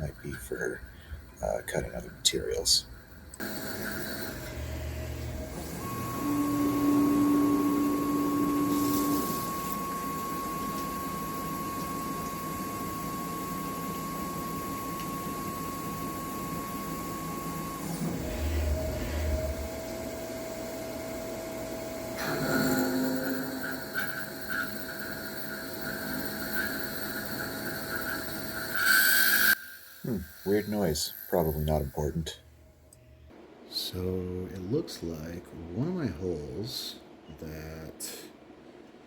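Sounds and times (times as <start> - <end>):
mill spindle whining: 1.4 - 32.1
drill cutting into metal: 3.4 - 20.0, 22.1 - 31.9
low hum of machine moving: 3.6 - 29.0.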